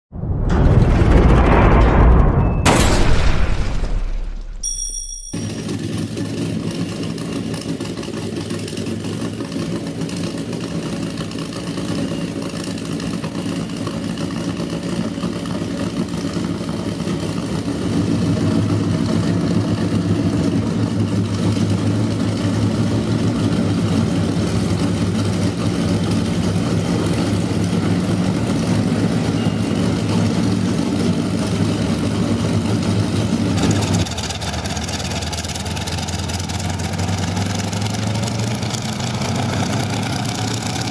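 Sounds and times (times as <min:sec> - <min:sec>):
helicopter engines running: 0:05.4 - 0:37.2.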